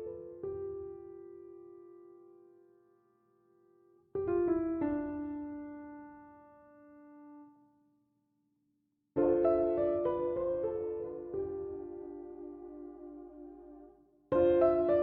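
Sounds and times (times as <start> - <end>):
slow solo piano chords: 0.0 - 2.7, 4.1 - 7.5, 9.2 - 15.0.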